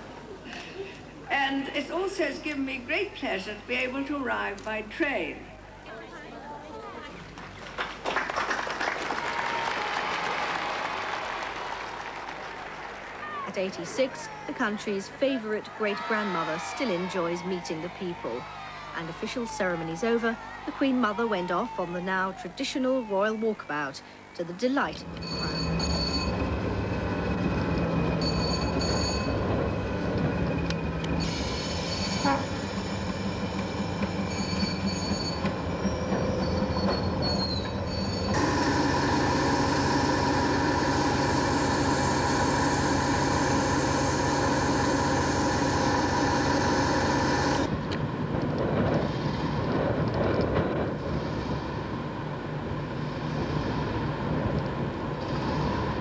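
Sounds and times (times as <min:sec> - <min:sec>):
train running hum: 0:24.8 - 0:56.0
high squeal: 0:25.0 - 0:38.4.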